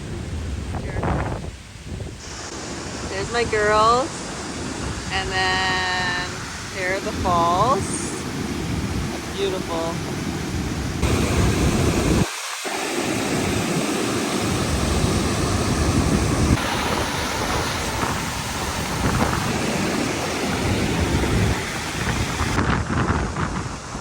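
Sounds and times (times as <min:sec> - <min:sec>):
wind rumble on microphone: 0:00.0 - 0:12.3, 0:13.2 - 0:24.0
waterfall rushing: 0:02.2 - 0:24.0.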